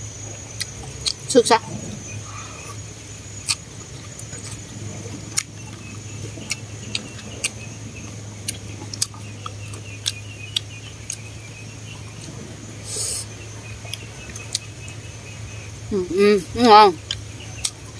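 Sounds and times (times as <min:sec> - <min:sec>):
steady low hum: 0:00.0 - 0:17.9
person chewing: 0:03.4 - 0:04.6, 0:08.4 - 0:11.2.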